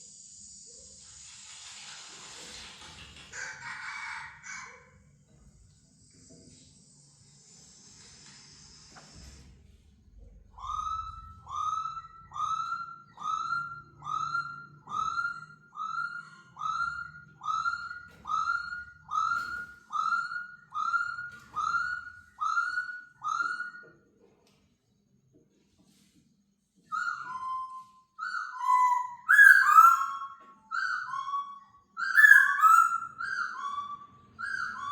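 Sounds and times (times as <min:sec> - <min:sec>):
bird whistled call: 0:10.6 - 0:24.0, 0:26.9 - 0:34.9.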